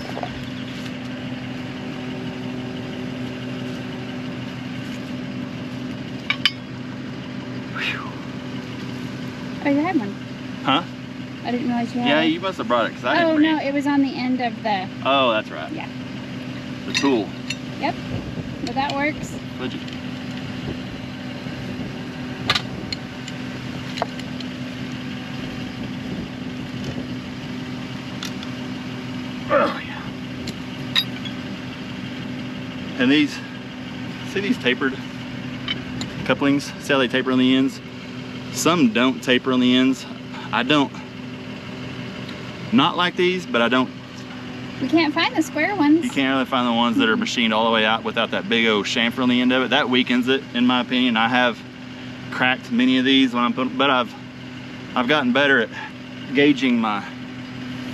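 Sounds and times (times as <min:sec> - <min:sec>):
engine idling: 0:00.0 - 0:57.9
sharp metallic clinks: 0:06.2 - 0:06.8, 0:16.8 - 0:17.8, 0:30.4 - 0:31.6.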